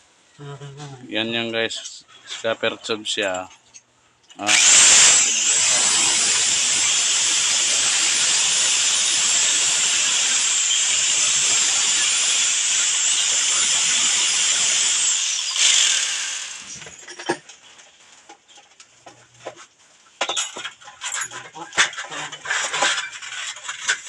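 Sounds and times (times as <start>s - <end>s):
electric drill whining: 4.5s - 16.9s.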